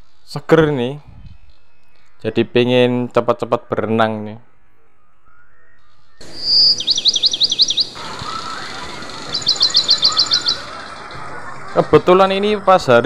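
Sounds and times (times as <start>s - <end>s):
bird chirping: 1.0s - 2.9s, 4.6s - 13.0s.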